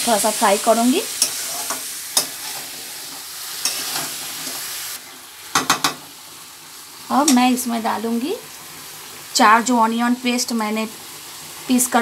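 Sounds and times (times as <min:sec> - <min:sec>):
chicken sizzling in hot oil: 0:00.0 - 0:12.0
metal spatula knocking on pan: 0:05.5 - 0:06.1.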